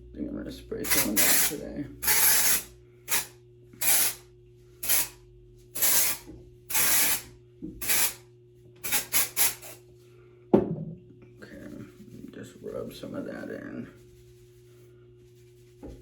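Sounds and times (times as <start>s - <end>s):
aerosol can spraying: 0.8s - 4.2s, 4.8s - 5.2s, 5.8s - 8.2s, 8.8s - 9.8s.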